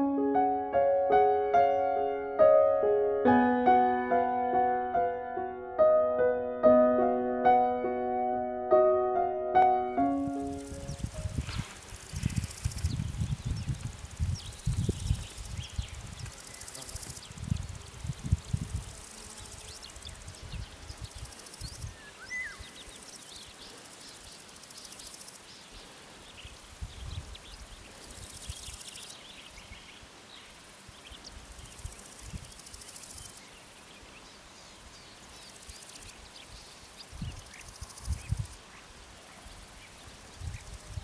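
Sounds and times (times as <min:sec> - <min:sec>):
insects chirring: 0:09.6 - 0:41.0
wind gusts on microphone: 0:10.4 - 0:22.9, 0:26.4 - 0:28.8, 0:30.9 - 0:32.6, 0:36.4 - 0:38.8, 0:39.4 - 0:41.0.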